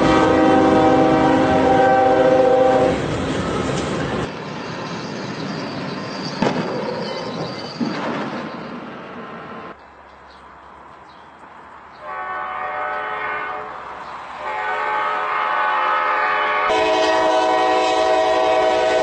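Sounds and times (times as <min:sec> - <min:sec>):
train horn blast: 0:00.0 - 0:03.0, 0:12.0 - 0:13.8, 0:14.4 - 0:19.0
passing train rushing: 0:00.0 - 0:19.0.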